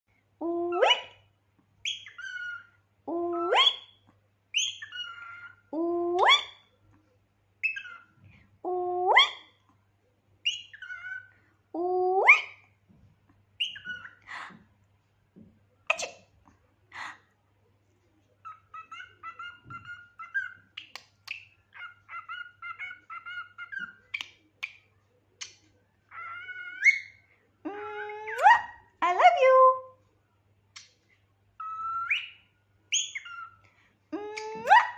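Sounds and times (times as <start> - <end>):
cockatiel chirping: 1.8 - 2.8, 3.5 - 5.6, 7.6 - 8.2, 10.4 - 11.3, 13.6 - 14.2, 18.5 - 24.8, 31.6 - 33.6.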